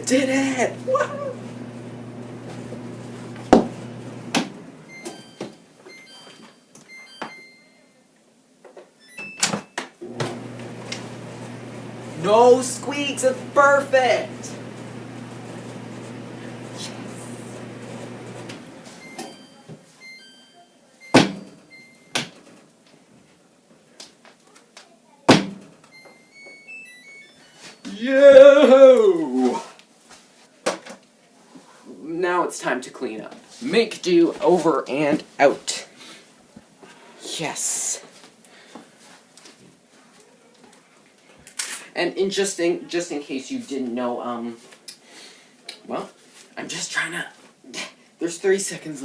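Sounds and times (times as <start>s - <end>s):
clothes dryer humming: 0.0s - 6.0s, 10.0s - 19.6s
short high beeps: 4.9s - 8.0s, 18.9s - 22.2s.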